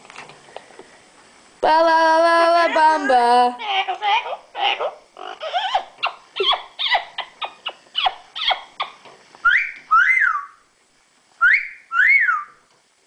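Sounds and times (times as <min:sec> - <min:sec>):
parrot chattering chirps: 0:03.6 - 0:10.6
parrot whistling two notes: 0:11.4 - 0:12.6.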